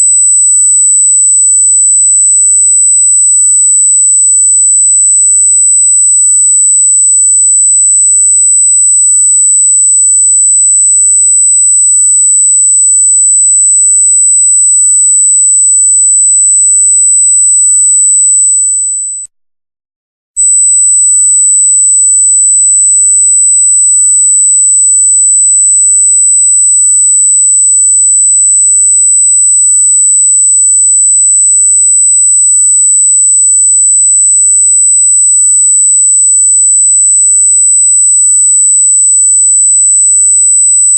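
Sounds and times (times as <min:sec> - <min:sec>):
high-pitched electronic tone: 0:18.4 - 0:19.3.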